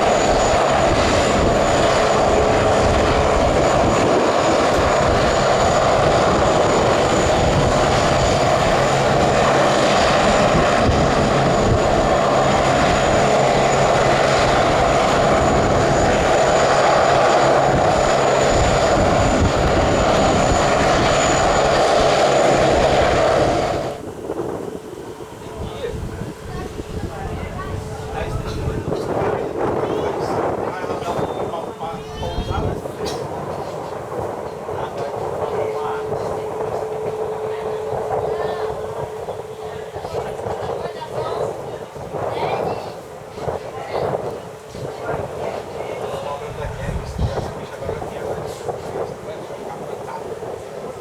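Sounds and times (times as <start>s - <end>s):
airliner engines running: 0.0s - 51.0s.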